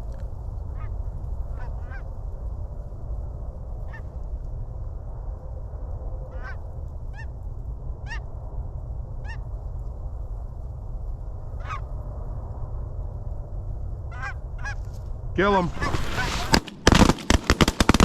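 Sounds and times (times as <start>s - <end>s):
wind on microphone: 0.0s - 17.2s
geese honking: 6.3s - 6.6s, 11.6s - 11.9s, 14.1s - 14.9s, 15.7s - 16.6s.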